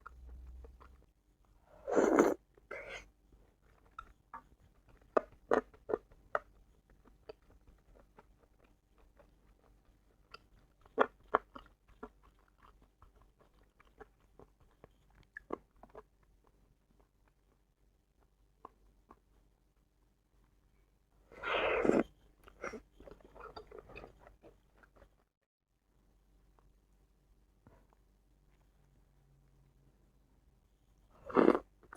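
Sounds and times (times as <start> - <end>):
person chewing food: 1.9 - 17.6, 21.4 - 25.3, 31.2 - 31.9.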